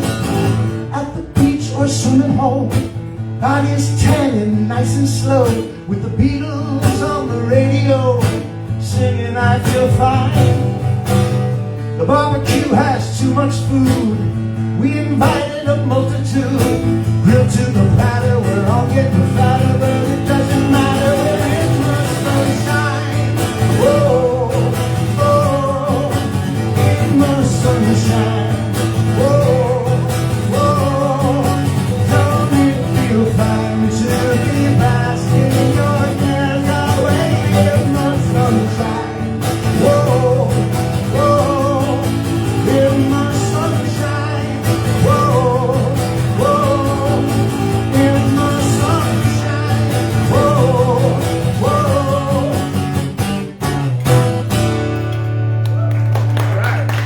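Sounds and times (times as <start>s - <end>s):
guitar accompaniment: 0.0s - 57.0s
person singing: 14.8s - 52.9s.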